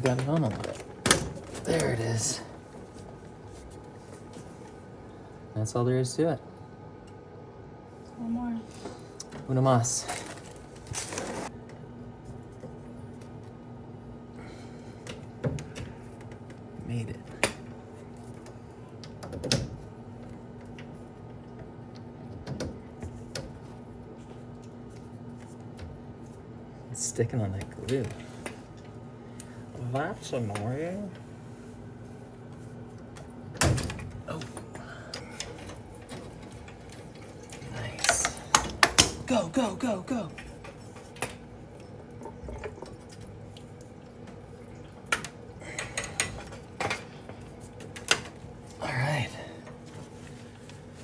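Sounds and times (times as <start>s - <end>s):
water draining and dripping: 41.8s - 46.8s.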